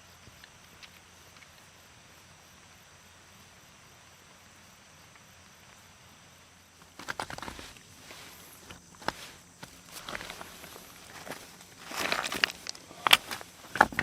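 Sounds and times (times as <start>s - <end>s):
faint outdoor hiss: 0.0s - 14.0s
quick footsteps: 6.8s - 14.0s.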